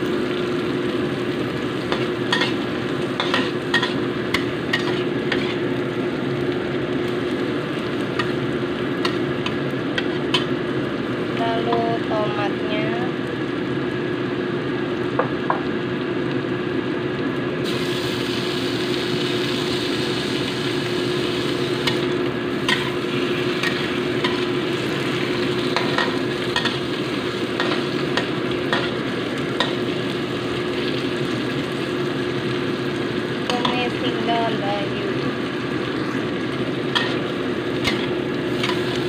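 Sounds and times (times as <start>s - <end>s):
food sizzling in hot oil: 0.0s - 39.0s
metal spatula scraping pan: 4.8s - 5.6s.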